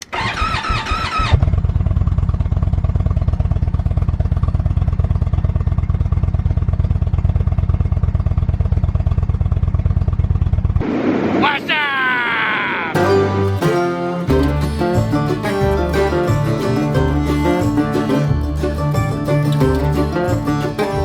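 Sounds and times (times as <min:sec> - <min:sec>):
motorcycle engine starting and idling: 0:00.0 - 0:10.8, 0:13.0 - 0:21.0.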